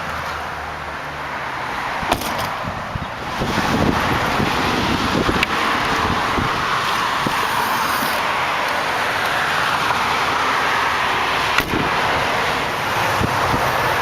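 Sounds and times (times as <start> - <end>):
road traffic hiss: 0.0 - 14.0.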